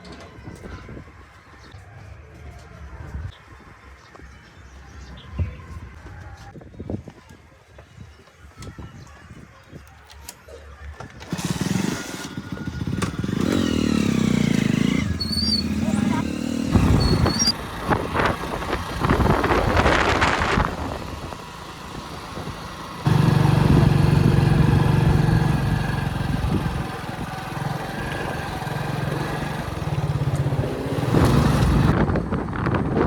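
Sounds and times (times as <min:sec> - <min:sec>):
diesel machinery engines running: 0:11.2 - 0:33.0.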